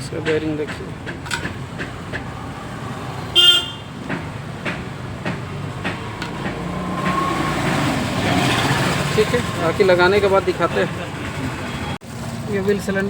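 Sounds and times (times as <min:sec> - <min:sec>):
traffic noise: 0:00.0 - 0:13.0
vehicle horn toot: 0:03.3 - 0:03.9.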